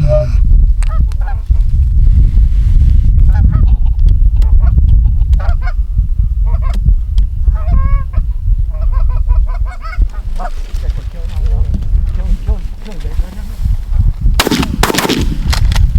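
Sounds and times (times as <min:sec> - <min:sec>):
heavy low rumble: 0:00.0 - 0:15.9.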